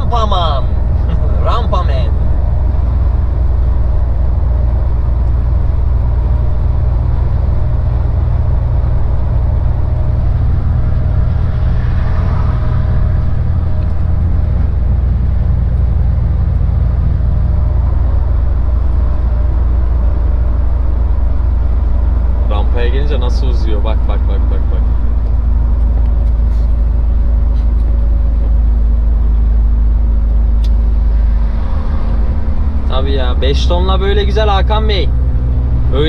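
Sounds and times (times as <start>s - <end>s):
truck diesel engine droning: 0.0s - 36.0s.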